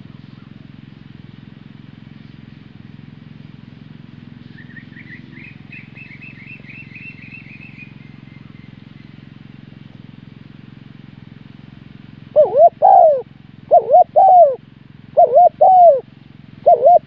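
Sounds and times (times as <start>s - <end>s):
small bird chirping: 4.4s - 9.4s, 12.4s - 14.6s, 15.2s - 16.0s, 16.6s - 17.0s.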